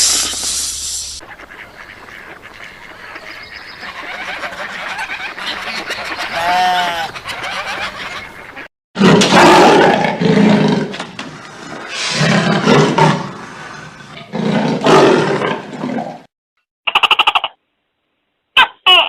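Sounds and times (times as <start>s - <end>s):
big cat roaring: 9.0s - 16.3s.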